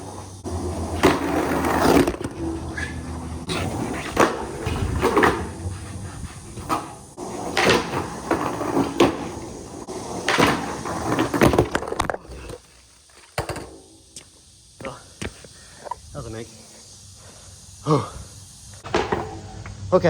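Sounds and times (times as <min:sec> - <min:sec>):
skateboard clacks and slams: 0:00.0 - 0:12.3, 0:18.8 - 0:19.8
skateboard rolling on concrete: 0:00.0 - 0:20.0.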